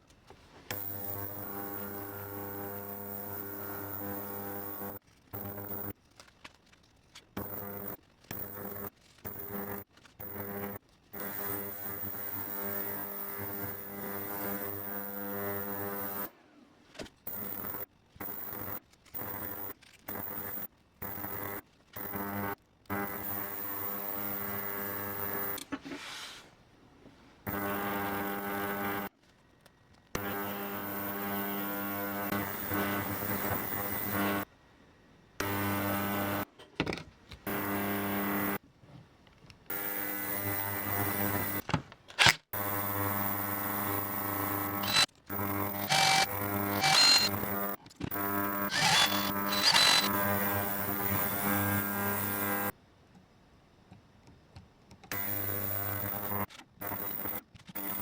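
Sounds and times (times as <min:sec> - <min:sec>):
electric buzz: 0:42.6 - 0:47.7, 0:48.3 - 0:52.7
small electric motor humming: 0:44.1 - 0:47.7, 0:48.3 - 0:52.7
clicks: 0:44.8 - 0:45.1, 0:45.8 - 0:47.4, 0:48.7 - 0:50.1.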